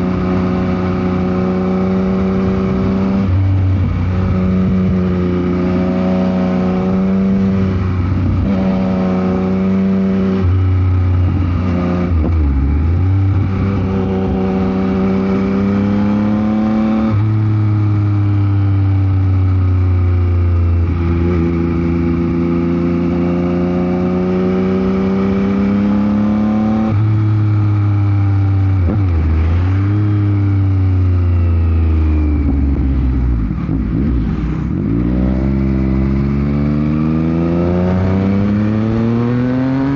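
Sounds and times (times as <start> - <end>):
wind noise on microphone: 0.0 - 5.9, 6.5 - 16.0, 32.3 - 36.6
motorcycle engine accelerating: 0.0 - 39.9.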